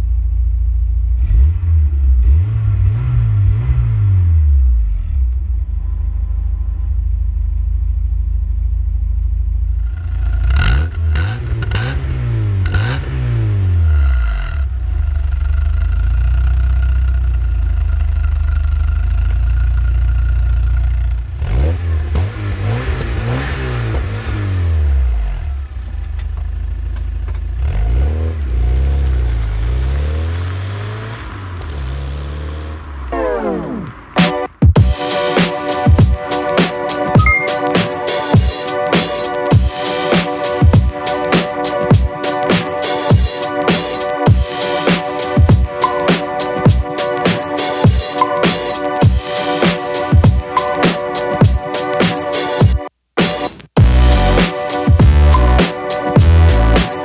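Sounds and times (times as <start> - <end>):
car engine idling and revving: 0.0 - 35.0, 53.8 - 57.0.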